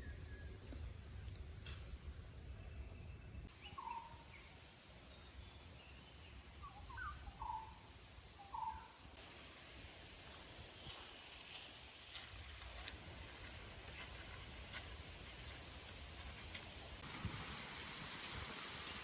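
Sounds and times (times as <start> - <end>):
bird chirping: 2.4 - 7.8.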